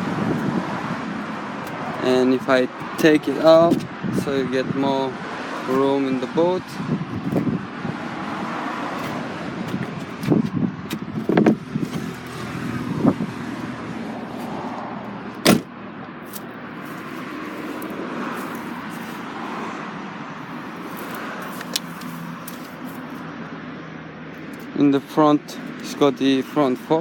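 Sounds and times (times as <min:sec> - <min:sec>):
sharp bang: 0:15.4 - 0:15.7.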